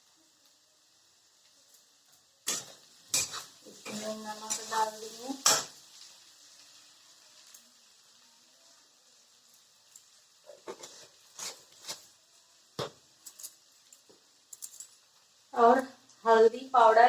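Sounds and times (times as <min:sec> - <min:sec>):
potatoes sizzling in oil: 0:00.0 - 0:17.0
kitchen utensils clicking: 0:02.5 - 0:04.7.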